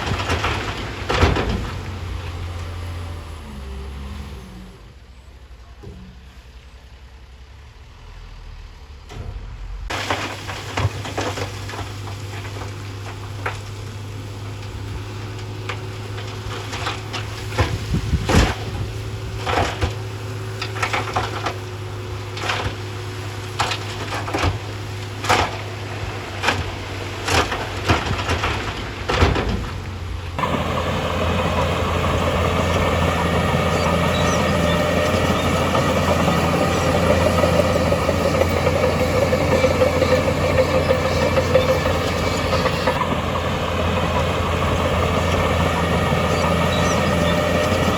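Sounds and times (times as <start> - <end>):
diesel engine running: 0.0 - 5.5, 6.4 - 47.9.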